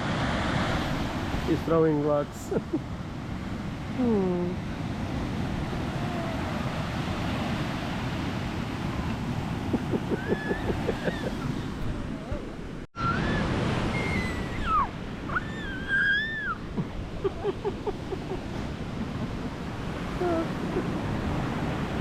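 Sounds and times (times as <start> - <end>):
ocean surf washing ashore: 0.0 - 22.0
high swooping calls: 9.7 - 11.6.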